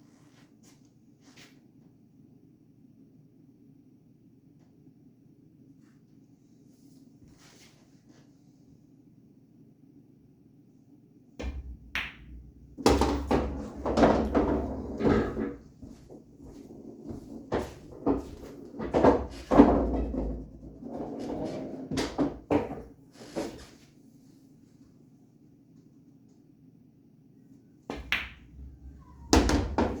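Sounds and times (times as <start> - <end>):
pool balls rolling: 11.4 - 23.7, 27.9 - 30.0
pool balls clicking: 11.5 - 15.7, 16.6 - 22.9, 27.9 - 30.0.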